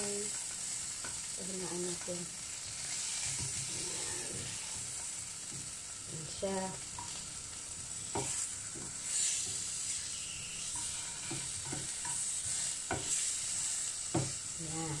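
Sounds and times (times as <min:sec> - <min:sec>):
cheese sizzling in frying pan: 0:00.0 - 0:15.0
spatula scraping and knocking: 0:08.1 - 0:09.6, 0:10.6 - 0:13.3.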